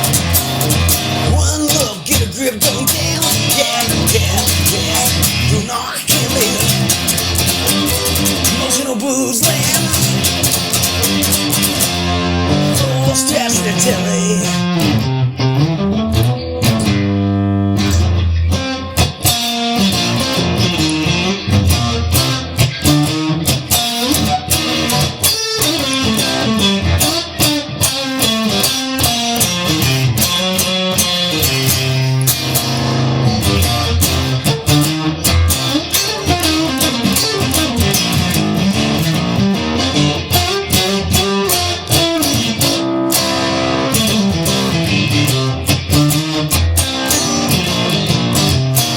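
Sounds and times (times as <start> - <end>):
bass guitar: 0.0 - 48.9
electric guitar playing: 0.0 - 48.9.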